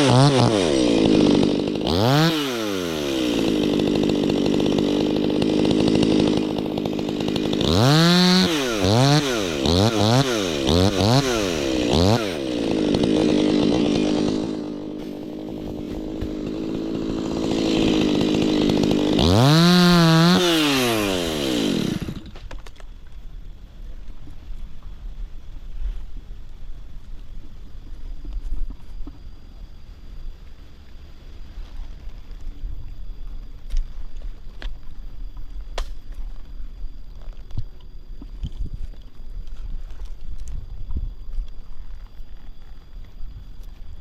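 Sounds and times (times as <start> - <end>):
chainsaw idling and revving: 0.0 - 22.5.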